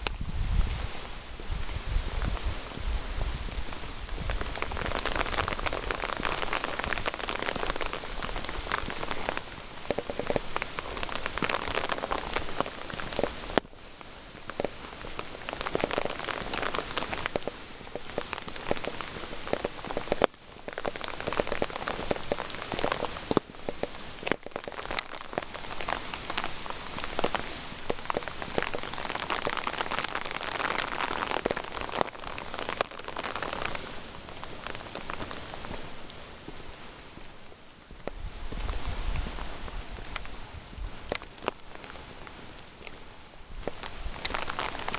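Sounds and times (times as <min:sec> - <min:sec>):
rain pattering on hard surfaces: 0:00.0 - 0:44.9.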